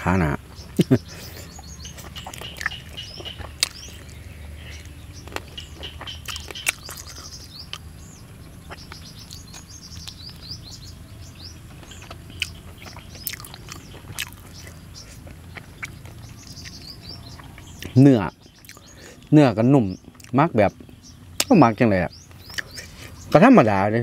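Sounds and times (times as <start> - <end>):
low background hum: 0.0 - 24.0
small birds chirping: 0.0 - 24.0
chewing with wet mouth clicks: 1.8 - 7.9, 8.7 - 10.5, 11.7 - 18.9, 20.1 - 21.5, 22.4 - 23.0.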